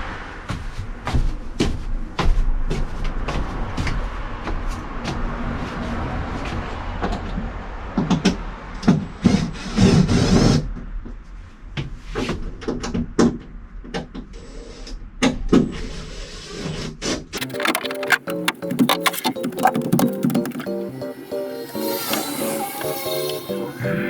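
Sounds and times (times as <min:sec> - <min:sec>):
knocks and clatter on wood: 0:17.4 - 0:20.8.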